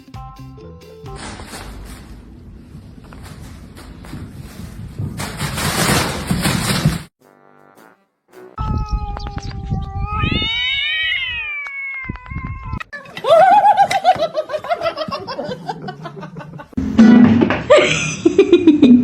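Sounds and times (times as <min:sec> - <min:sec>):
cat yowling: 0:08.6 - 0:12.9.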